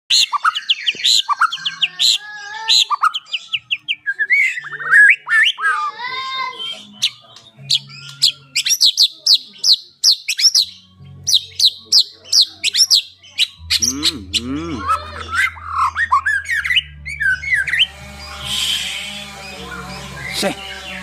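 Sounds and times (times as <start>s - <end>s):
songbird singing varied song: 6.6s - 21.0s.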